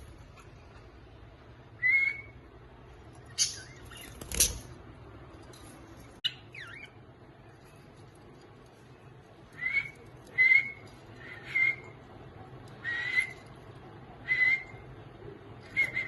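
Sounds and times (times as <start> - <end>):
parrots whistled calls: 1.8 - 2.4, 9.6 - 12.0, 12.8 - 13.4, 14.2 - 14.8, 15.6 - 16.0.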